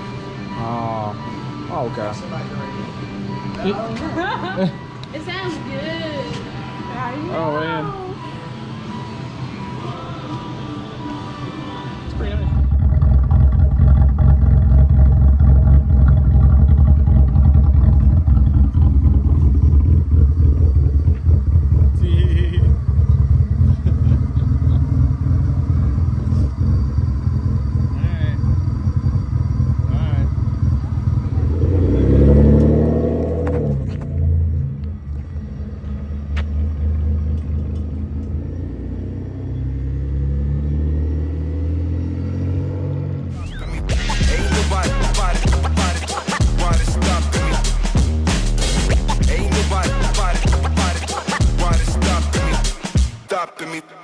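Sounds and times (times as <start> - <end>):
car exhaust droning: 12.0 - 52.8.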